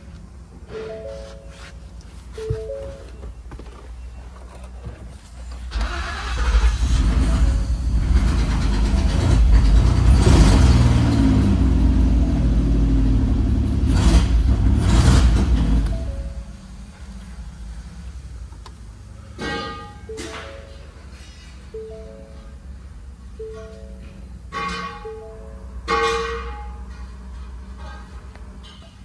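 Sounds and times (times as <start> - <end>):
car engine starting and revving: 5.7 - 16.4.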